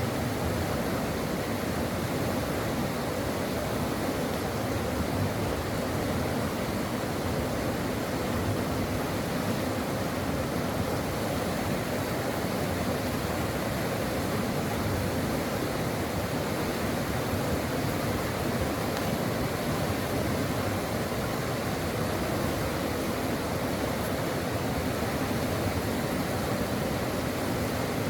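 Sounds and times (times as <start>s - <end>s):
brook water flowing over rocks: 0.0s - 28.0s.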